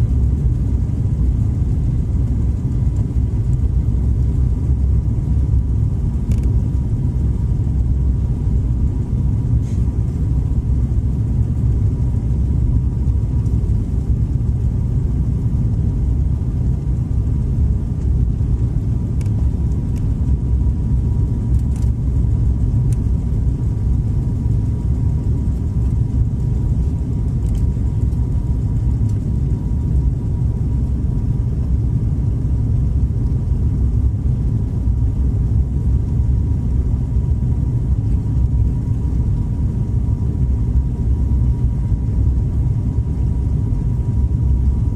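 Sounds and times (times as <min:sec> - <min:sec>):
airliner cabin rumble: 0:00.0 - 0:44.9
faint constant whine: 0:00.0 - 0:44.9
light ticks: 0:19.2 - 0:20.0.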